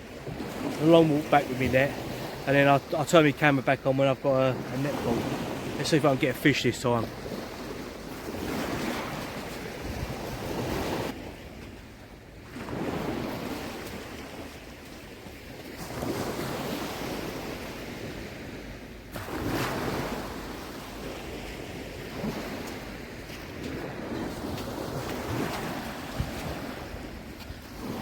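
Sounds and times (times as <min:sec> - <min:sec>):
small waves washing: 0:00.0 - 0:28.0
wind on microphone: 0:07.2 - 0:11.2, 0:22.1 - 0:28.0.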